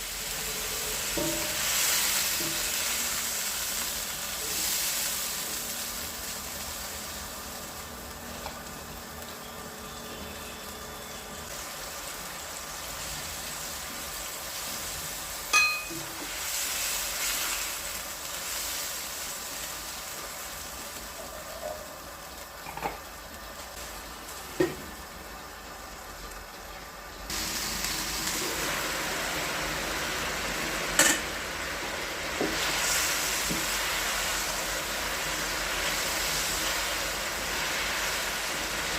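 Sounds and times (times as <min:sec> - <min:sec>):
chicken sizzling in a pan: 0:00.0 - 0:38.9
utensil clinking against pan: 0:15.5 - 0:16.1.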